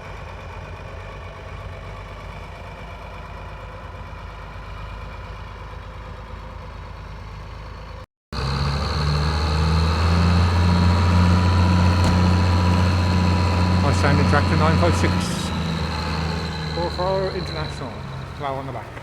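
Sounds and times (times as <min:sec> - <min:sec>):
diesel tractor engine running: 0:06.6 - 0:19.0
close tractor engine pulsing: 0:08.4 - 0:19.0.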